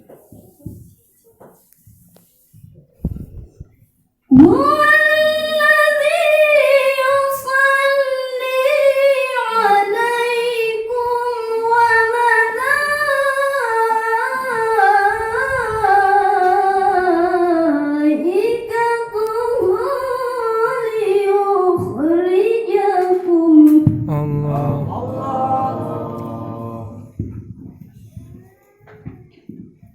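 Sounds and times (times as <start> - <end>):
woman reciting melodically: 4.3 - 27.2.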